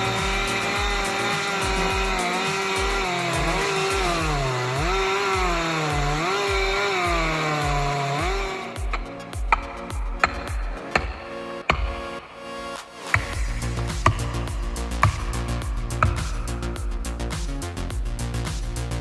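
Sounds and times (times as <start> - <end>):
chainsaw cutting wood: 0.0 - 12.2
music with bass beat: 0.0 - 19.0.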